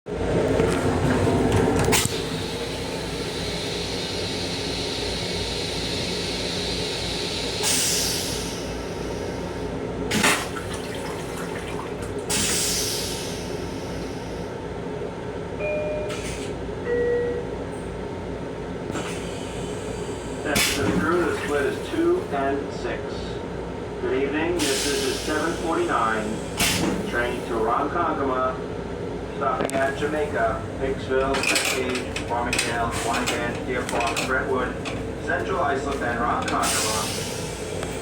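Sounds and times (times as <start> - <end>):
moving train rumble: 0.1 - 38.0
toilet flushing hissing water: 2.1 - 14.4, 29.9 - 38.0
short beeps: 15.6 - 16.3, 16.9 - 17.4.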